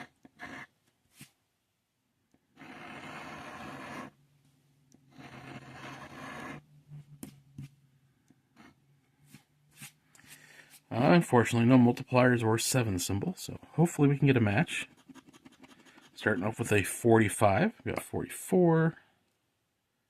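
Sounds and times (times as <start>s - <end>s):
lottery ticket scratching: 13.8s - 17.4s.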